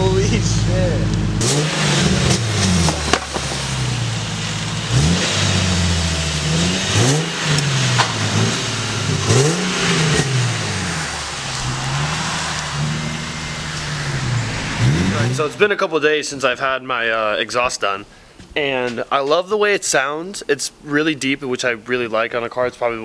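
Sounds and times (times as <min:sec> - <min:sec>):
car engine revving: 0:00.0 - 0:16.0
exhaust crack: 0:00.0 - 0:16.8.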